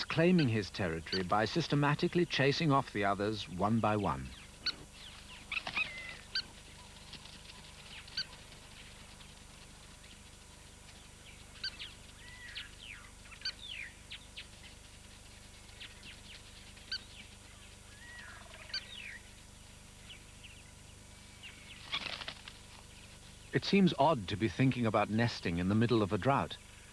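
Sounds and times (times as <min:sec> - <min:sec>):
plovers calling: 0:00.0 - 0:09.0, 0:15.7 - 0:19.4
faint low hum: 0:00.0 - 0:26.9.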